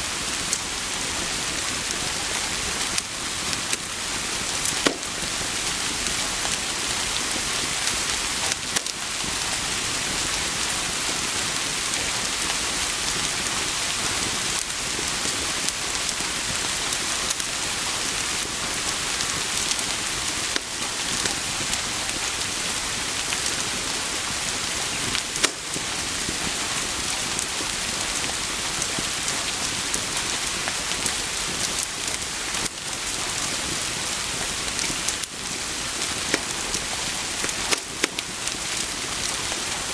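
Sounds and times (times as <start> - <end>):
steady rain hiss: 0.0 - 39.9
sharp raindrop ticks: 1.8 - 10.4, 18.2 - 33.5, 34.7 - 39.9.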